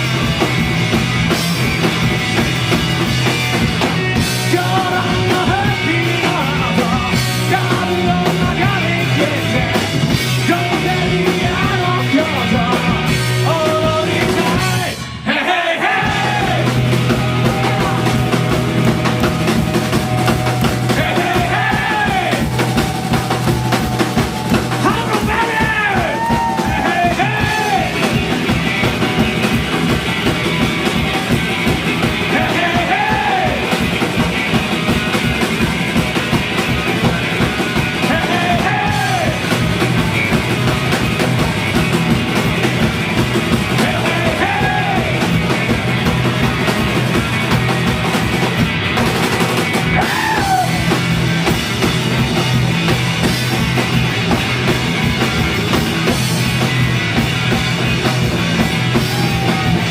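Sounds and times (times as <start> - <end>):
drum kit fast beat: 0.0 - 59.9
punk rock band playing loudly: 0.0 - 59.9.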